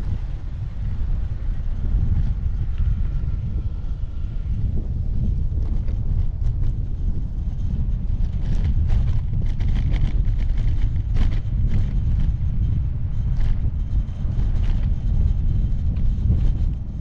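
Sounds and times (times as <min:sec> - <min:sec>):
bicycle clicks and rattles: 0:00.0 - 0:17.0
wind rumbling on microphone: 0:00.0 - 0:17.0.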